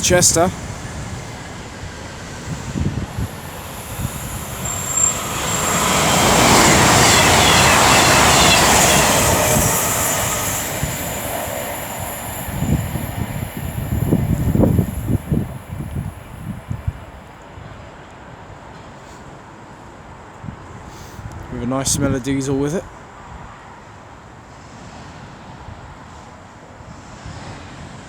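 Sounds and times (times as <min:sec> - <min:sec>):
high wheel squeal: 0:00.0 - 0:16.9
train passing: 0:00.0 - 0:28.0.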